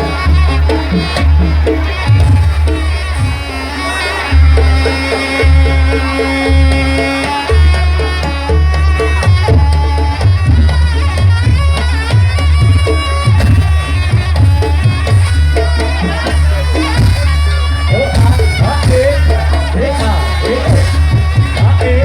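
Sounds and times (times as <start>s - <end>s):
reedy shawm melody: 0.0s - 22.0s.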